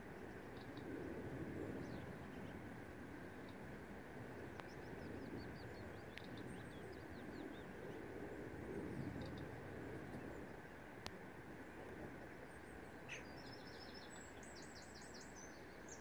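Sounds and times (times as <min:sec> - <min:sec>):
small birds chirping: 0:04.3 - 0:10.9, 0:12.0 - 0:16.0.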